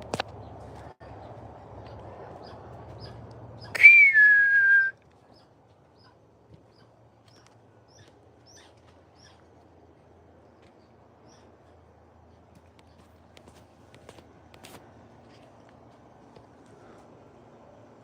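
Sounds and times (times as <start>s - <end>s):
small birds chirping: 0.2s - 3.8s, 5.2s - 13.2s
loud whistled note: 3.8s - 4.9s.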